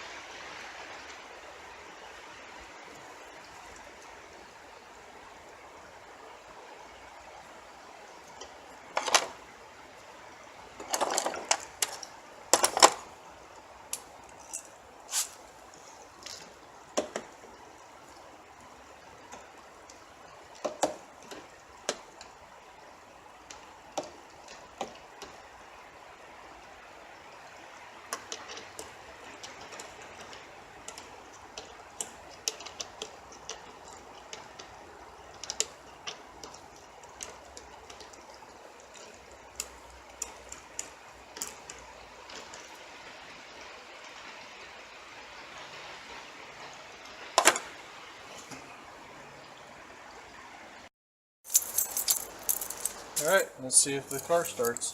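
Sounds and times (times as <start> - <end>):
faint hiss: 0.0 - 23.9, 51.5 - 54.9.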